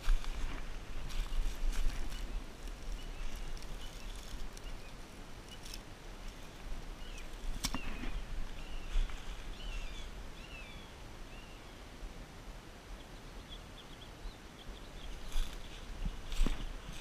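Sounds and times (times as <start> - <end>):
small birds chirping: 0.0 - 11.8, 13.0 - 17.0.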